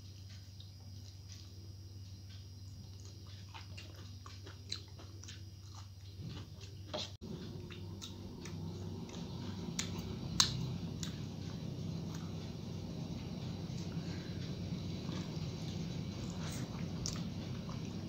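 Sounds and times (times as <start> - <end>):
steady low hum: 0.0 - 18.0
person chewing food: 0.2 - 18.0.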